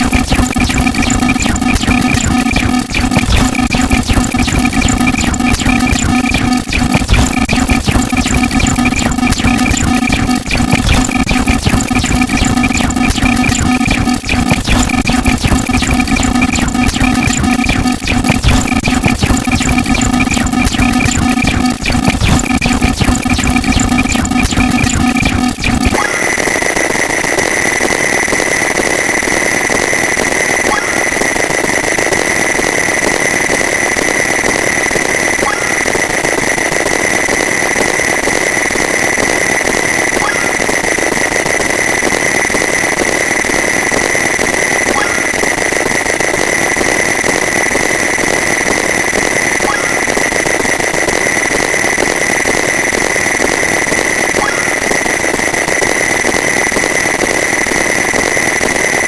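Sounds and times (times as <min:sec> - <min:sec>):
many alarms blaring: 0:00.0 - 0:59.0.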